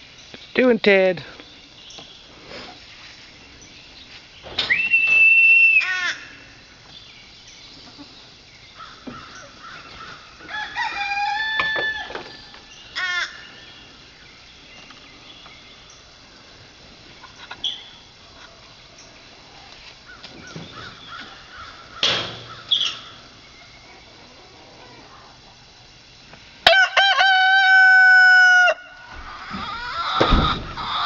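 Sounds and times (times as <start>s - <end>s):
rooster crowing: 10.4s - 12.3s, 26.6s - 31.0s.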